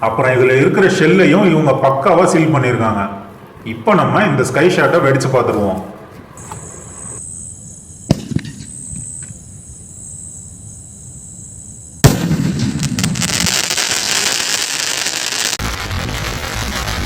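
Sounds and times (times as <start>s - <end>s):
firework crackling and hiss: 12.0s - 17.0s.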